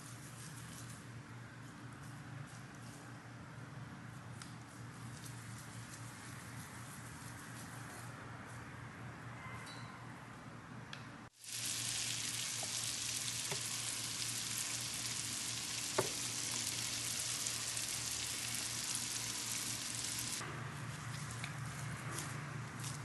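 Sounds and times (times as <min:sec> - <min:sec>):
food sizzling in a pan: 0:11.3 - 0:20.4.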